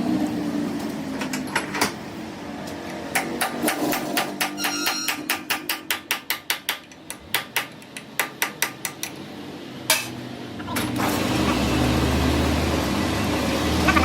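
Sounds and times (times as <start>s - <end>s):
hammer strikes on metal: 3.1s - 9.1s
machine humming: 13.4s - 14.0s.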